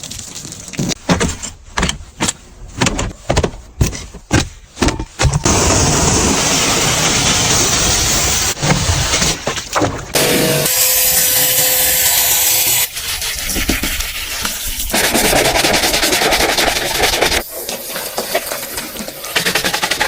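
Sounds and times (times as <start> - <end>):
rapid scrubbing strokes: 12.9 - 17.4.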